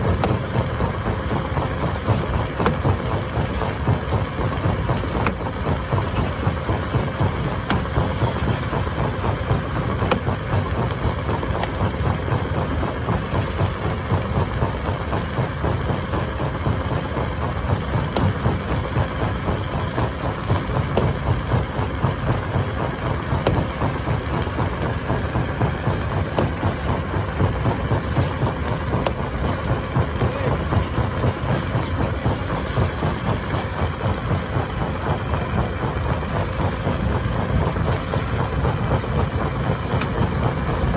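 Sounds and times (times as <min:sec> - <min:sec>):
stone crusher machine running: 0:00.0 - 0:40.9.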